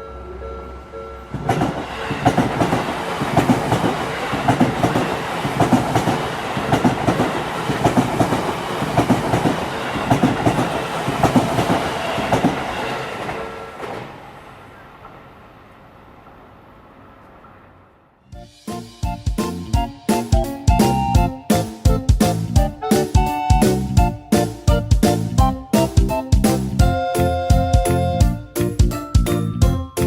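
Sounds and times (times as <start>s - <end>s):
wheels clattering over rail joints: 1.4s - 15.3s.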